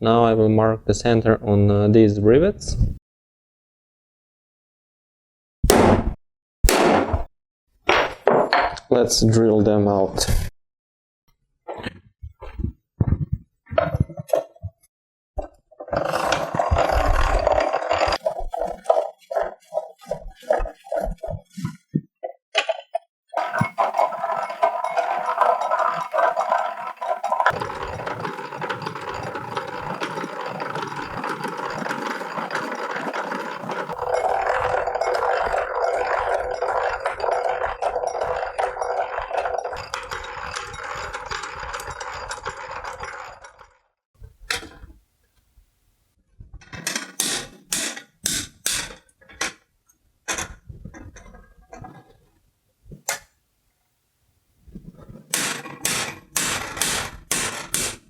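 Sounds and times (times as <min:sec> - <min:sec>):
drill grinding through metal: 0:23.4 - 0:38.8.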